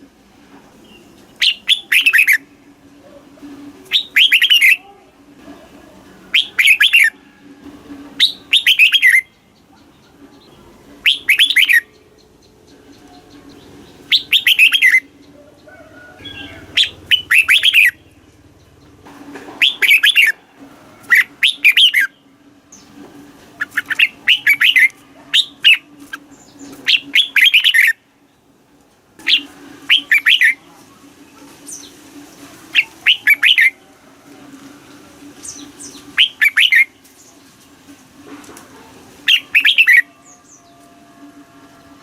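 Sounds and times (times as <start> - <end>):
bird singing rapid phrases: 0.8 - 2.5, 3.8 - 4.8, 6.3 - 7.1, 8.2 - 19.0, 19.6 - 20.4, 21.0 - 22.9, 23.6 - 28.0, 29.2 - 30.7, 32.7 - 33.8, 35.4 - 37.4, 39.2 - 40.8.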